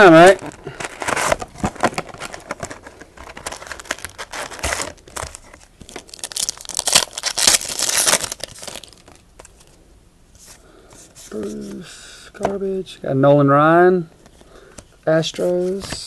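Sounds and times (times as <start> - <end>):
wrappers being torn and crinkled: 3.2 - 9.2.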